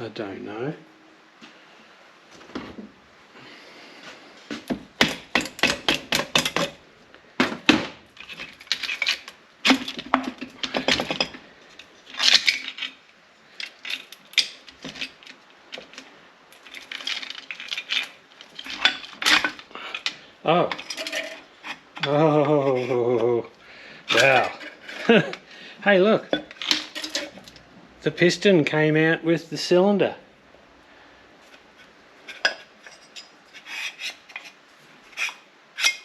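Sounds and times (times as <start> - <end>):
hand tools clinking on metal: 16.6 - 23.3, 24.1 - 25.4, 26.1 - 27.6, 32.3 - 34.5.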